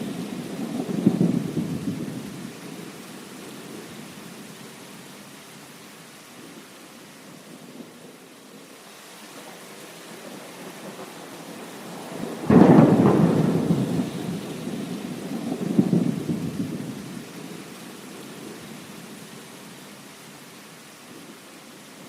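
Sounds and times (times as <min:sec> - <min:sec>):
thunderclap rumbling: 0:00.0 - 0:02.5, 0:10.6 - 0:17.2
heavy rain: 0:00.0 - 0:22.0.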